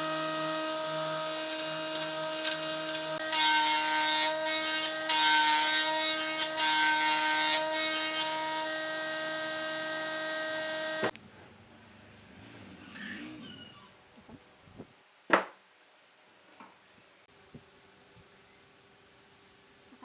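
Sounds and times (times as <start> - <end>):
tool rasping into wood: 0.0 - 3.2
power tool motor whining: 0.0 - 5.5.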